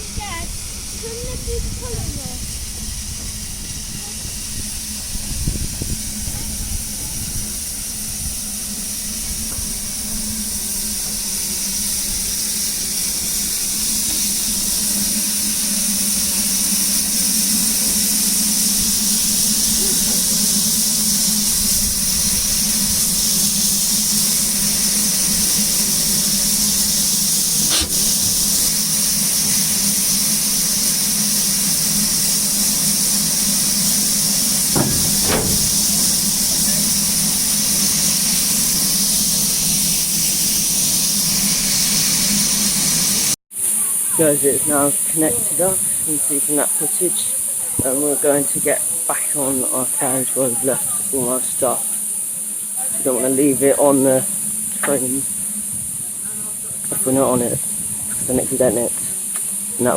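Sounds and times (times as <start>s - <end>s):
steam locomotive hissing: 0.0s - 59.9s
sharp metal clank: 27.6s - 28.6s, 34.8s - 37.0s.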